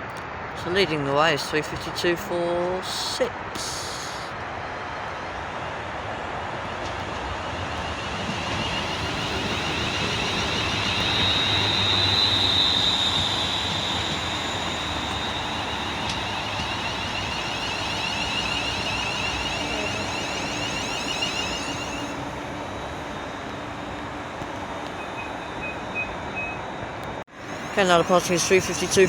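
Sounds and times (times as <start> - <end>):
electric train rumble: 0.7 - 29.0
high electrical whine: 7.8 - 22.4.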